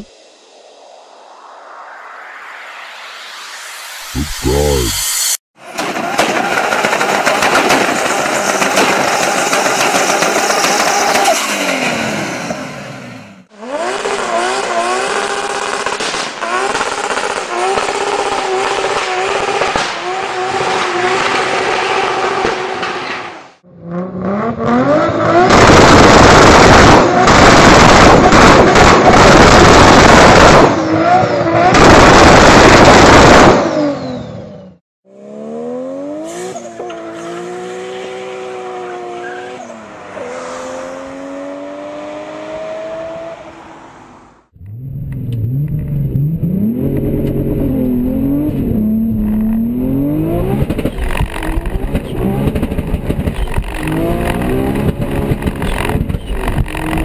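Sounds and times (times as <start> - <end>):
car engine revving: 44.6 - 57.0.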